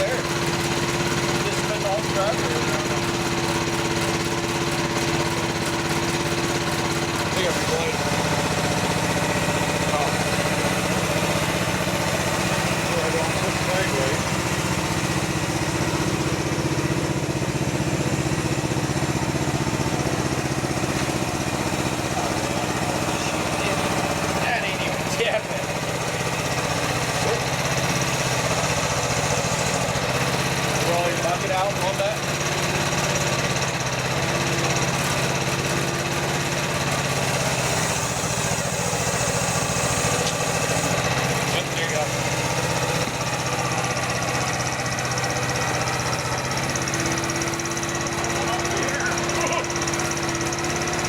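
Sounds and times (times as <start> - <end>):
excavator engine running: 0.0 - 51.0.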